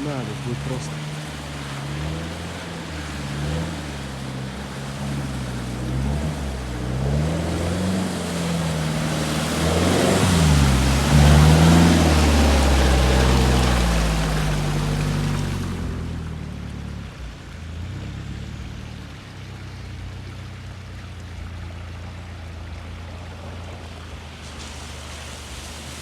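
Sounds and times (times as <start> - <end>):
engine revving under load: 0.0 - 16.4
water rushing: 0.0 - 26.0.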